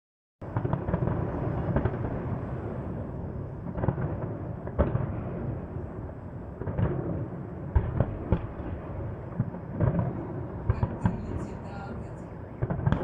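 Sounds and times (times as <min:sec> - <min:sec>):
distant explosions rumbling: 0:00.4 - 0:13.0
fireworks booming bursts: 0:00.4 - 0:13.0.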